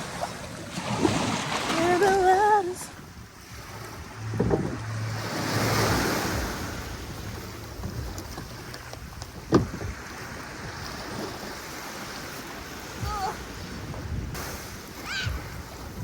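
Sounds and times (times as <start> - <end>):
sea waves washing onto beach: 0.0 - 16.0.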